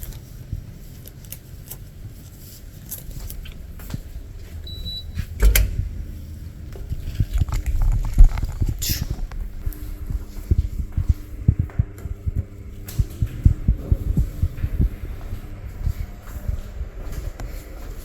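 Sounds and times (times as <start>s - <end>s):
footsteps: 2.1s - 18.0s
key card reader beep: 4.6s - 5.7s
door clunk: 5.2s - 5.9s.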